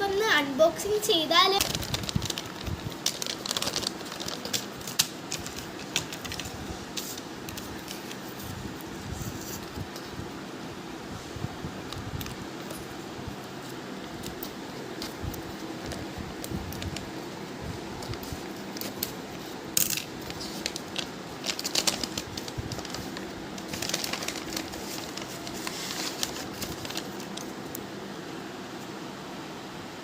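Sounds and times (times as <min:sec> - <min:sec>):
steady low hum: 0:00.0 - 0:30.0
bag crinkling and rustling: 0:01.5 - 0:06.6, 0:18.4 - 0:27.6.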